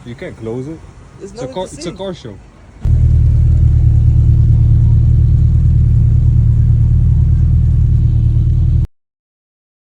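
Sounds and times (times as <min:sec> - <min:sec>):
car engine droning: 0:02.8 - 0:08.9.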